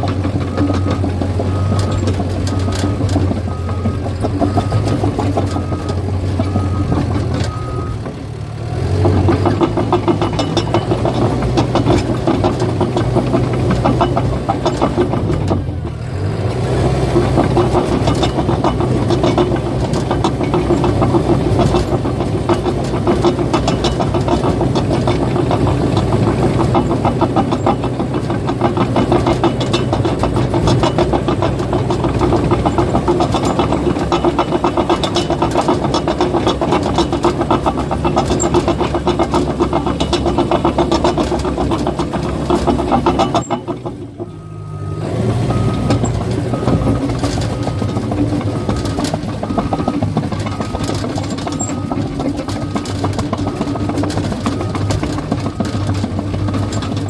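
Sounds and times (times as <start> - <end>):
bulldozer diesel engine: 0.0 - 57.0
steel tracks clattering: 0.0 - 57.0
reversing alarm beeping: 0.2 - 8.1, 44.3 - 55.9.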